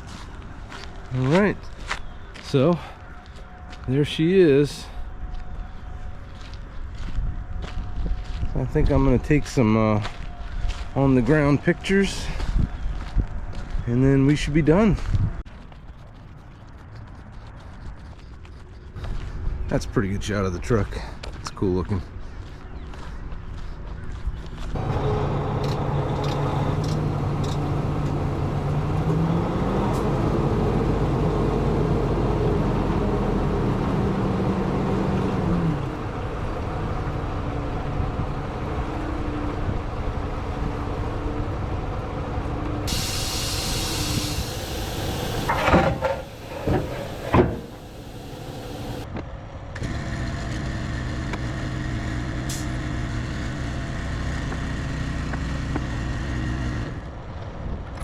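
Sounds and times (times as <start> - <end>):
diesel truck engine idling: 24.8 - 29.0, 30.4 - 49.0
hiss of released air: 42.9 - 49.0.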